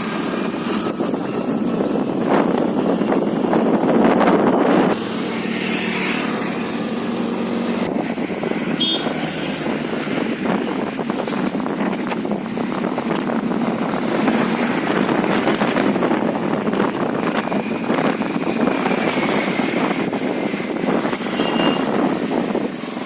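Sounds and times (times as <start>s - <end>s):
road and engine noise: 0.0s - 23.0s
wind rushing over microphone: 0.0s - 23.0s.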